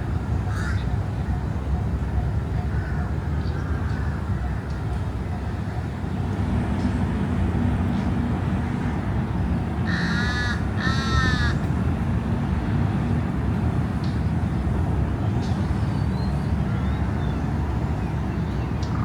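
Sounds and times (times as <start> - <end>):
city traffic hum: 0.0 - 19.0
crow cawing: 9.9 - 11.6.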